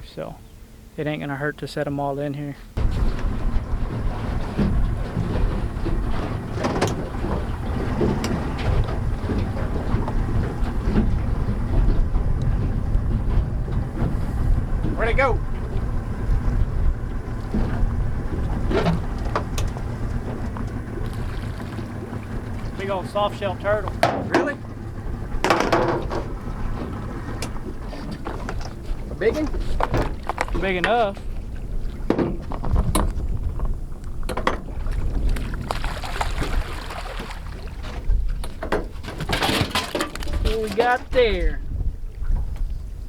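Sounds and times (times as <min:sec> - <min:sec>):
low boat rumble: 0:00.0 - 0:43.0
wind noise on microphone: 0:02.8 - 0:43.0
short knocks or splashes: 0:17.4 - 0:24.8, 0:25.4 - 0:33.2, 0:34.3 - 0:41.3
sharp knocks: 0:25.4 - 0:26.3.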